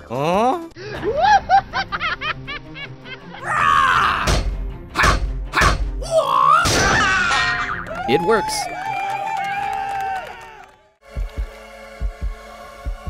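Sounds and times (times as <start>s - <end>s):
sharp whacks: 4.2s - 5.9s, 6.6s - 7.3s.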